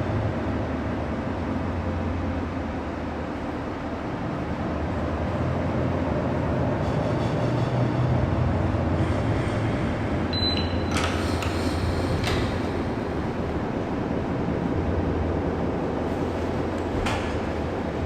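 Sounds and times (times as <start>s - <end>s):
bus engine rumble: 0.0s - 18.0s
rattles and knocks: 16.1s - 17.8s.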